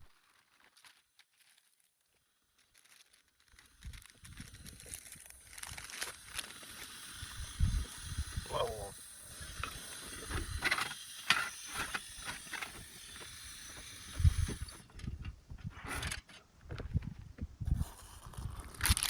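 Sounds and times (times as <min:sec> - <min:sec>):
camp stove burner hissing: 0:03.5 - 0:16.2, 0:17.6 - 0:19.0
gear clicking and knocking: 0:09.2 - 0:17.0.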